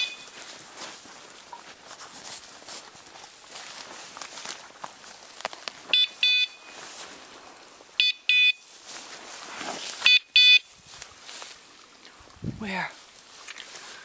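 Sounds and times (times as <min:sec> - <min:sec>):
short high electronic beeps: 0:00.0 - 0:00.4
footsteps rustling in brush: 0:00.0 - 0:14.0.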